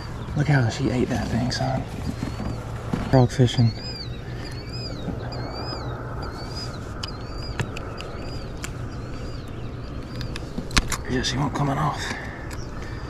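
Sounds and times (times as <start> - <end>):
bird chirping: 0.0 - 13.0
low background noise: 0.0 - 13.0
sharp clicks: 7.0 - 11.1, 12.0 - 12.9.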